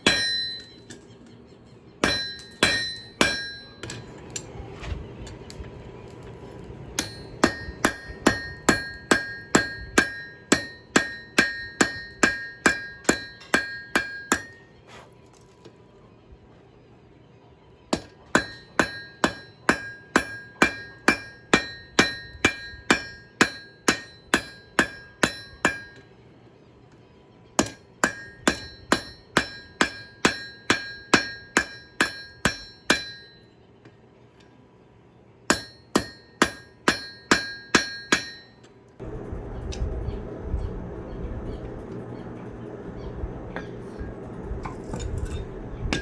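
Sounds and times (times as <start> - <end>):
hammer ringing on anvil: 0.0 - 1.0, 2.0 - 4.0, 7.0 - 14.7, 17.9 - 26.0, 27.6 - 33.6, 35.5 - 38.6.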